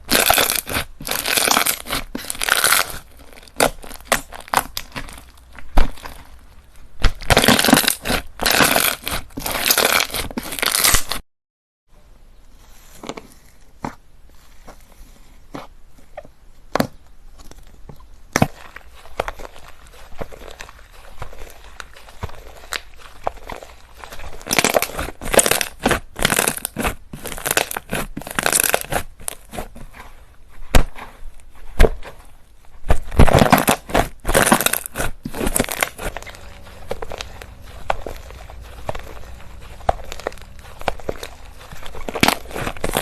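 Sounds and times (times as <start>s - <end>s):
slime squished by hand: 0.0s - 11.2s, 18.2s - 30.1s.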